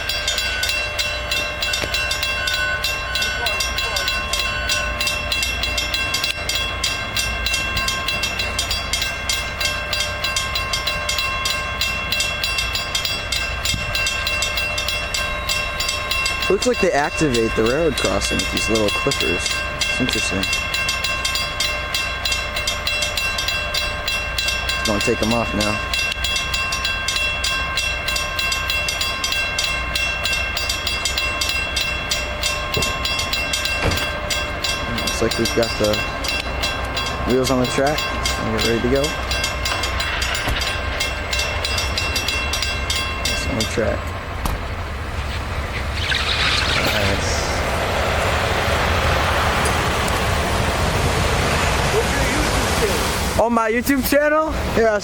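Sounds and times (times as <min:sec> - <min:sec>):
crossing bell ringing rapidly: 0:00.0 - 0:52.6, 0:53.4 - 0:55.0
low engine rumble: 0:31.3 - 0:53.4.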